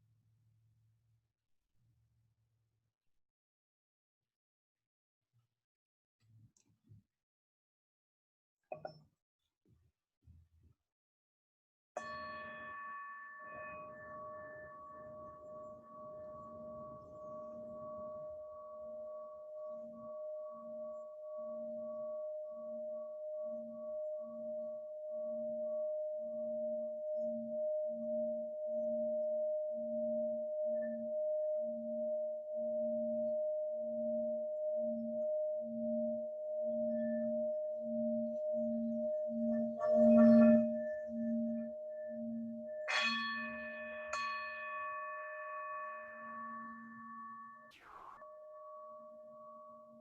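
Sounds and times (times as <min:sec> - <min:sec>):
singing bowl ringing: 0:12.0 - 0:50.0.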